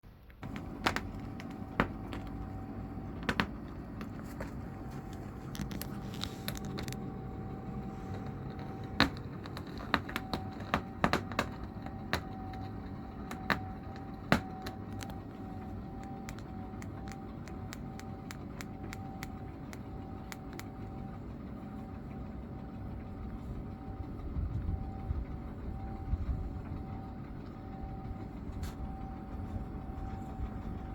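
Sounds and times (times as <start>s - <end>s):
low mechanical rumble and hum: 0.1s - 30.9s
sharp clicks and knocks: 0.3s - 15.2s, 16.0s - 20.8s.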